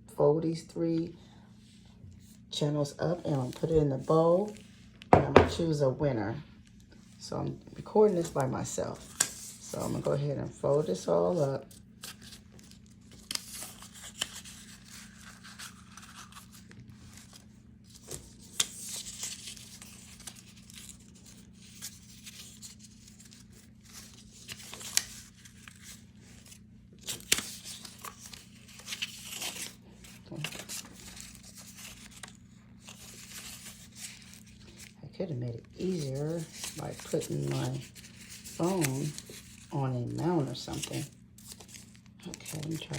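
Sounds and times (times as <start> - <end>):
paper crinkling and rustling: 8.1 - 35.0, 35.6 - 42.9.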